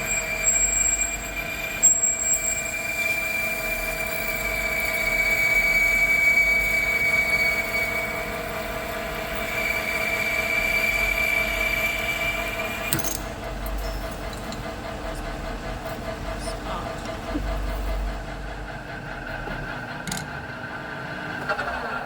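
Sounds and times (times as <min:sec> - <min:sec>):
metal cutting tool squealing: 0:00.0 - 0:14.0.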